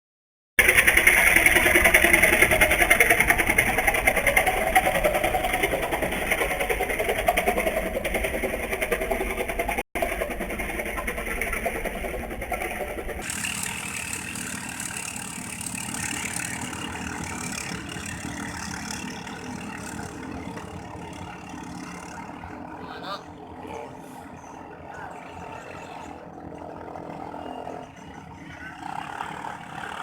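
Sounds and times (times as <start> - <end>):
boat engine running: 0.6 - 30.0.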